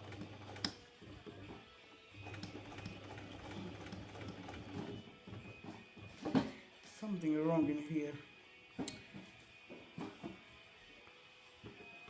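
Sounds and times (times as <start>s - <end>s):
electric sewing machine running: 0.0s - 1.6s, 2.2s - 5.0s.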